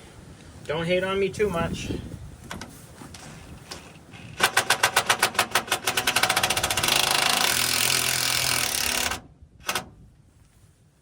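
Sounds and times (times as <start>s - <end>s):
impact driver buzzing: 4.4s - 9.8s.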